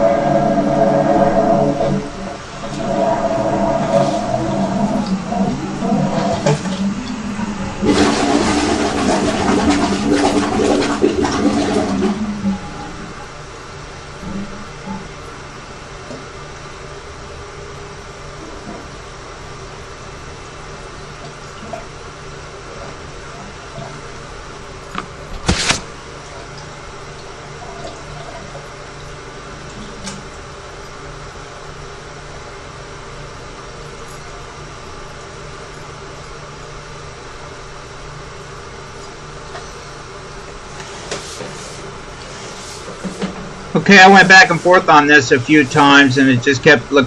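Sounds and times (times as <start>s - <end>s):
water rushing through sewer: 0.0s - 16.2s, 38.8s - 47.0s
low machine hum: 0.0s - 47.0s.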